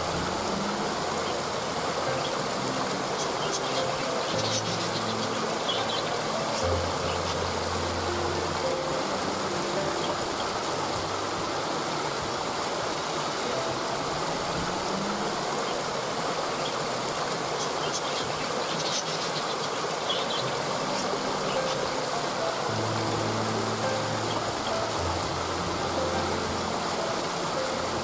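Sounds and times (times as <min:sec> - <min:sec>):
waterfall rushing: 0:00.0 - 0:28.0
high bird chirps: 0:03.1 - 0:07.5, 0:17.6 - 0:22.0.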